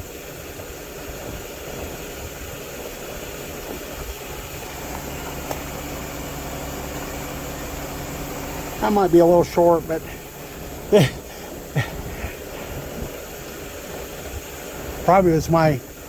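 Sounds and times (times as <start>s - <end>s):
milling machine hum: 0.0s - 16.0s.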